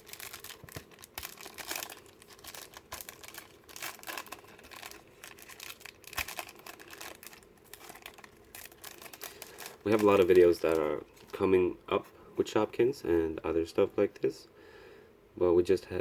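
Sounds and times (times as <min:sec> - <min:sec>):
wrapper crinkling and tearing: 0:00.0 - 0:11.4.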